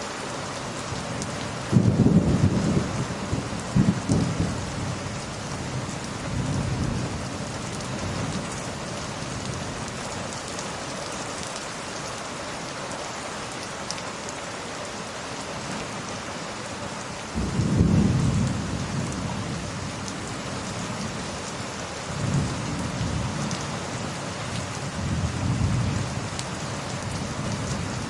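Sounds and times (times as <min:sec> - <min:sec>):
heavy rain falling: 0:00.0 - 0:28.0
distant thunder rolling: 0:01.7 - 0:05.1, 0:17.4 - 0:19.7.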